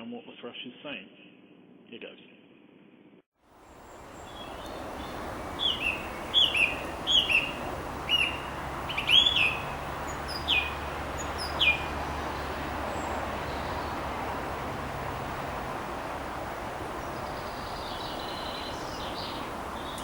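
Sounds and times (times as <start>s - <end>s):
low background rumble: 3.8s - 20.0s
thrush singing: 4.0s - 20.0s.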